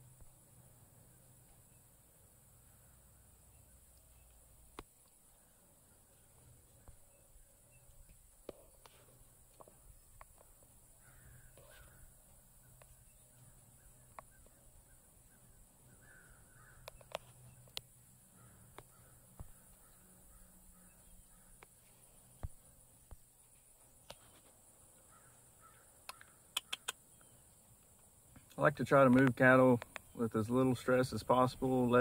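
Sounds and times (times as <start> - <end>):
faint harsh bird calls: 0.0 - 28.5
faint low hum: 0.0 - 32.0
sharp clicks: 26.0 - 27.0.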